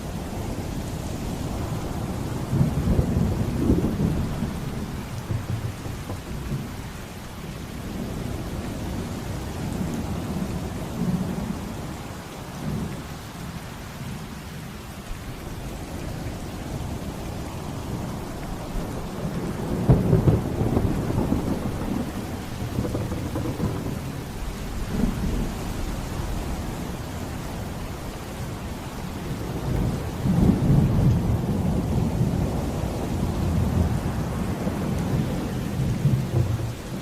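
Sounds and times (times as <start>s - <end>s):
heavy rain: 0.0s - 37.0s
thunder rumbling: 1.4s - 8.1s, 18.9s - 25.6s, 34.9s - 37.0s.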